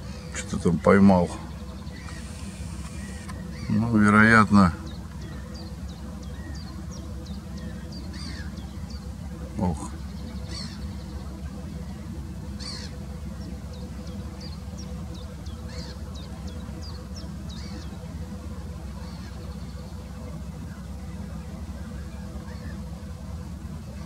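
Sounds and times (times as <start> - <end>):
harsh bird calls: 0.0 - 24.0.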